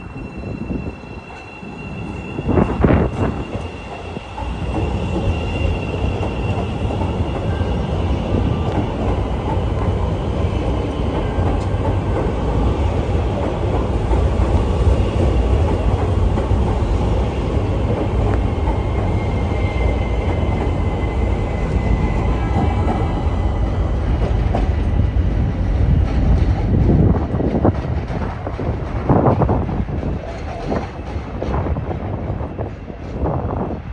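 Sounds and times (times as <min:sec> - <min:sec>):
train wheels rumbling on rails: 0:00.0 - 0:33.9.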